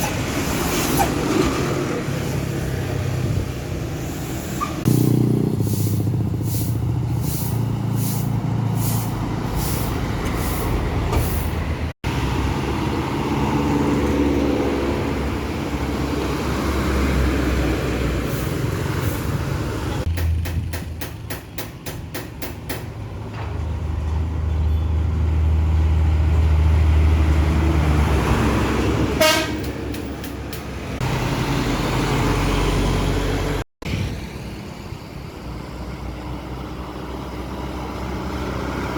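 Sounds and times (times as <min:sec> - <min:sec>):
truck engines pulling under load: 0:00.0 - 0:38.9
truck horn toot: 0:29.2 - 0:29.8.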